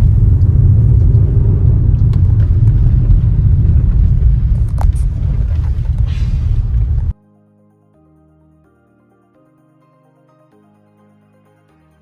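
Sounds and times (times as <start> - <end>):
car rumbling on rough road: 0.0 - 7.1.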